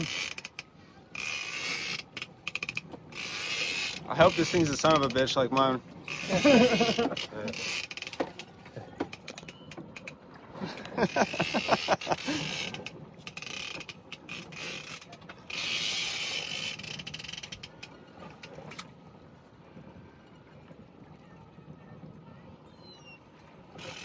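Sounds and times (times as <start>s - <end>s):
fishing reel clicking: 0.0s - 5.2s, 11.2s - 18.0s, 23.8s - 24.0s.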